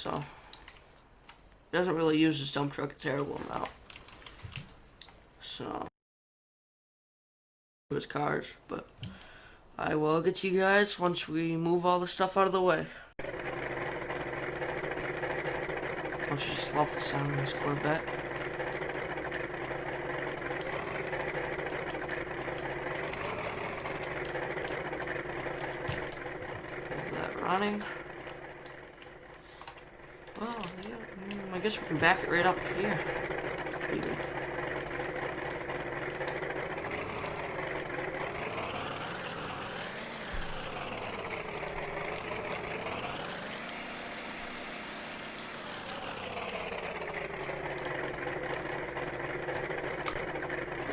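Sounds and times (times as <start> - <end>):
car engine idling: 13.2 - 50.9.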